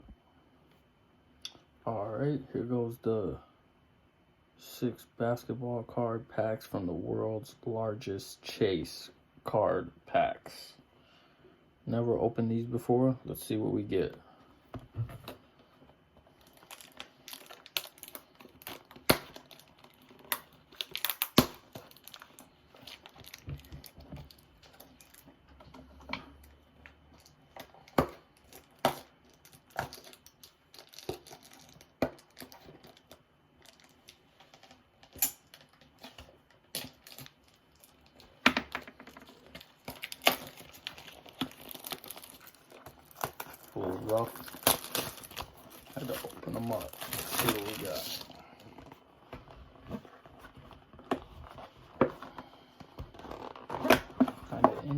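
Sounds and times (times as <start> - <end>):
cardboard and wrapping tearing: 16.4 - 25.3, 28.4 - 34.2, 36.7 - 38.2, 39.2 - 48.4.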